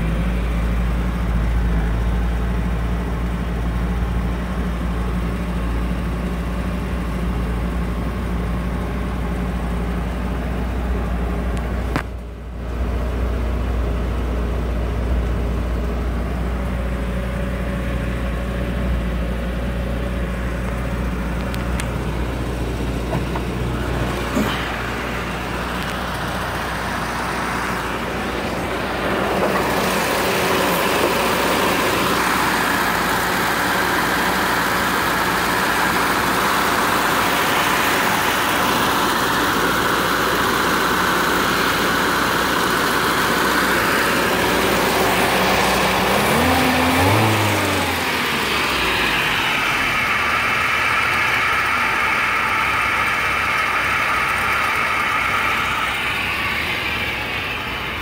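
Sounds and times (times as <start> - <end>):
car engine idling: 0.0 - 58.0
engine revving: 17.9 - 58.0.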